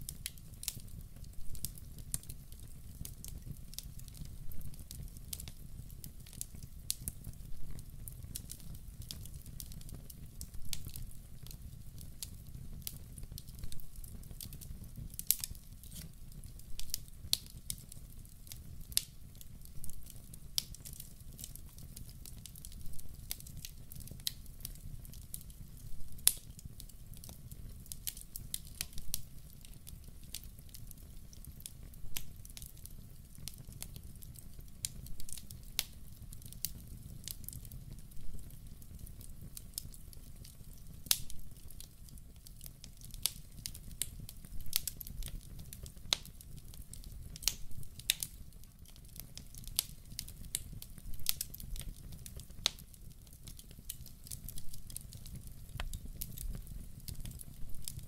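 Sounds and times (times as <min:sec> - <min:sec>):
fire crackles and pops: 0:00.0 - 0:58.0
low rumble of flame: 0:00.0 - 0:58.0.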